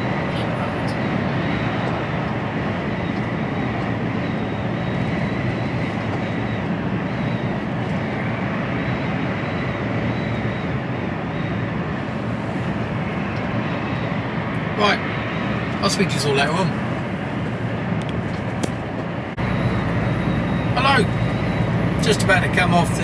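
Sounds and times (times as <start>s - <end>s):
truck engine and road noise: 0.0s - 23.0s
faint high whine: 19.4s - 23.0s.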